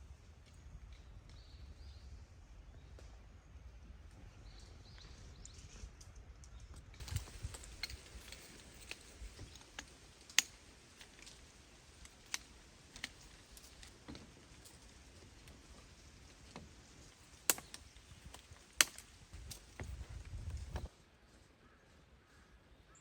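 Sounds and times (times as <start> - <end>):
light clicks and taps: 5.4 - 20.9.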